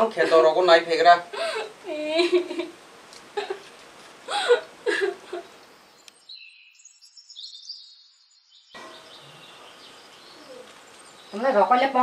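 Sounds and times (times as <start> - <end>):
background hum: 0.0 - 6.3, 8.8 - 12.0
faint high chirping calls: 5.2 - 12.0.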